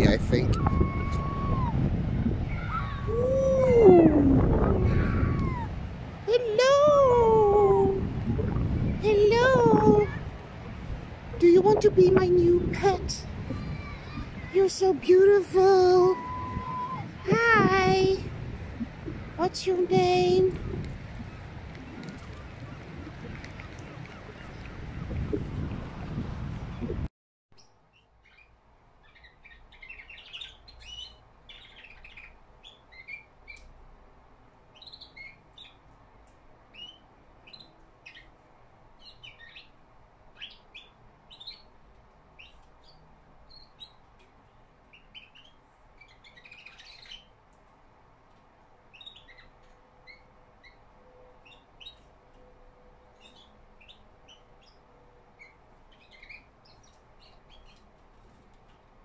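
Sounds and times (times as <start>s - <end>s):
young bird chirping and twittering: 27.6s - 33.6s, 34.8s - 35.8s, 45.0s - 47.3s, 48.9s - 50.8s, 55.4s - 57.9s.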